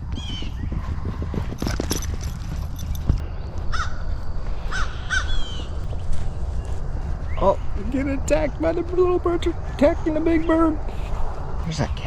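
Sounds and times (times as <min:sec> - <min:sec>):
harsh bird calls: 0:00.0 - 0:01.0, 0:03.2 - 0:08.2.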